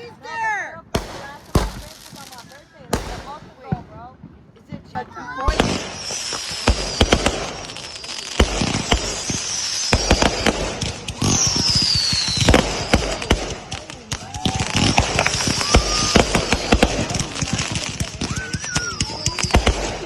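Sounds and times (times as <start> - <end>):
fireworks and firecrackers banging: 0.0 - 20.0
whistling firework: 5.5 - 20.0.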